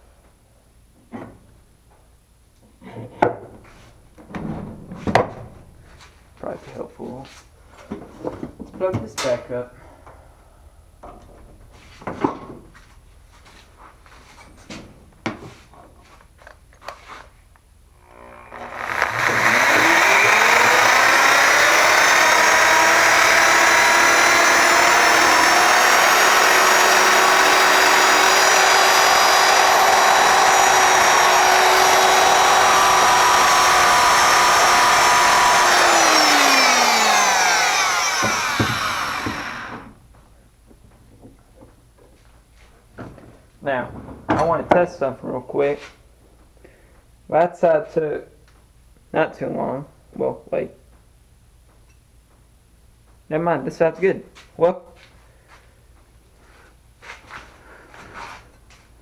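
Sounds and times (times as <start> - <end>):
electric power tool motor running: 17.9 - 40.0.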